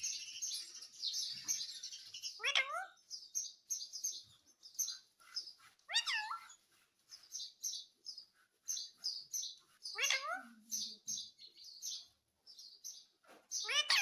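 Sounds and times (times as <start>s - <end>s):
parrot high chirps: 1.4s - 3.1s, 5.9s - 6.6s, 8.8s - 11.4s, 13.6s - 14.0s.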